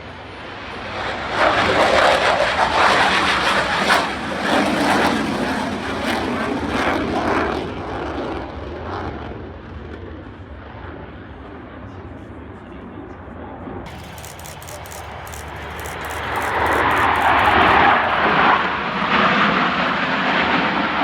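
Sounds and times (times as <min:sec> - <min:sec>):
military aircraft flying past: 0:00.3 - 0:09.3, 0:13.9 - 0:21.0.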